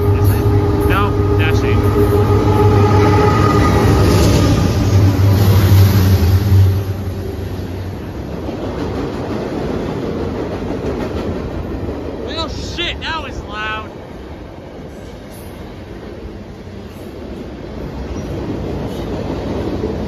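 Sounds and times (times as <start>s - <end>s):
train horn chord: 0.0s - 5.4s
diesel locomotive engine drone: 0.0s - 20.0s
freight cars wheel and rail noise: 0.0s - 20.0s.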